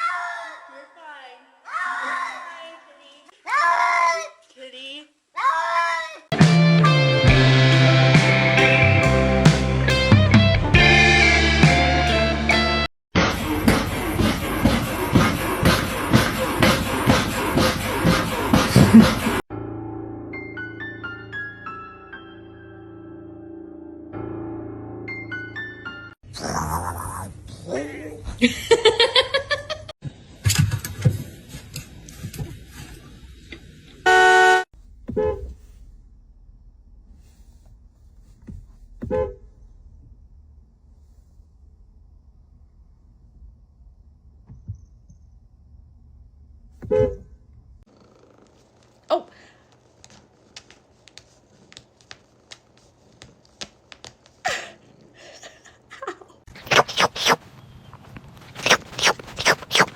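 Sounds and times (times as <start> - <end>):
loud horn-like honk: 34.0 - 35.5
short pitched squawk: 56.7 - 57.4, 58.6 - 59.9.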